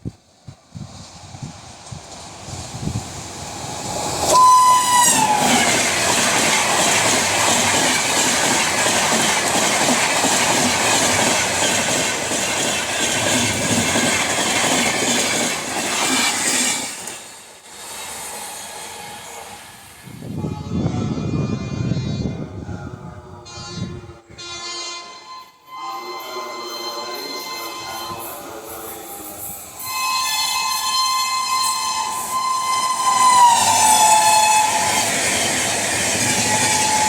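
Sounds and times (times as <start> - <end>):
train rushing past: 0.0 - 23.4, 25.8 - 37.0
shrill locomotive horn: 4.3 - 5.9, 20.2 - 35.2, 36.4 - 37.0.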